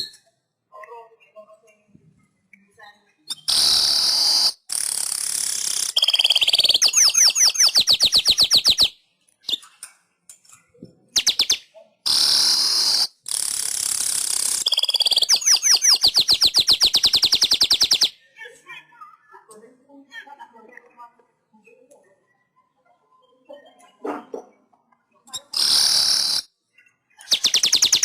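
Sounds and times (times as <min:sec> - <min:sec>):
weaver bird singing: 0:05.7 - 0:09.8, 0:11.2 - 0:13.1, 0:14.4 - 0:18.2, 0:25.3 - 0:28.0.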